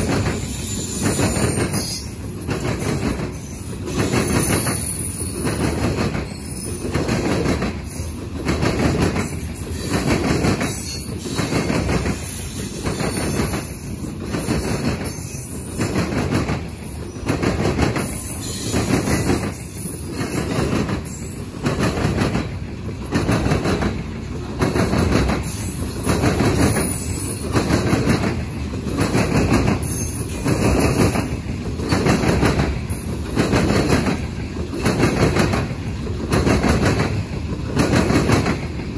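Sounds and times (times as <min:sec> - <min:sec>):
train wheels clattering over rails: 0:00.0 - 0:38.9
high wheel squeal: 0:00.4 - 0:05.5, 0:06.3 - 0:06.9.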